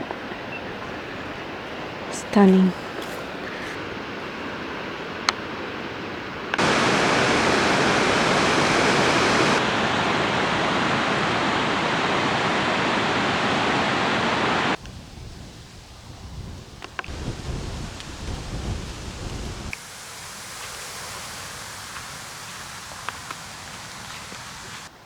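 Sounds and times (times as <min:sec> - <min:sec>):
rushing water: 0:00.0 - 0:14.8, 0:16.9 - 0:25.0.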